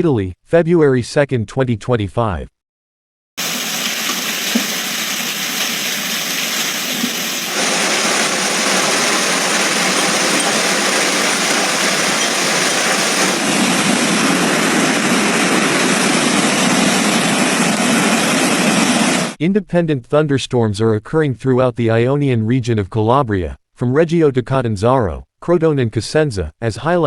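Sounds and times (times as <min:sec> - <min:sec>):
heavy downpour: 0:03.4 - 0:16.0.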